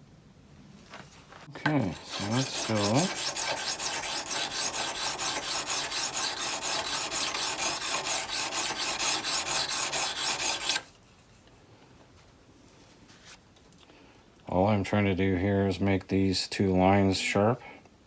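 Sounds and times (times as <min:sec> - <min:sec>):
chisel rasping on whetstone: 0:01.6 - 0:10.8.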